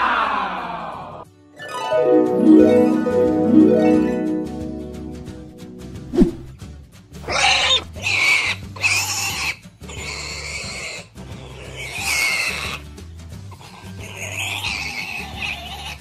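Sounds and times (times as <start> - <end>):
background music: 0.9 - 6.6
pig calls: 7.2 - 12.8, 13.6 - 16.0.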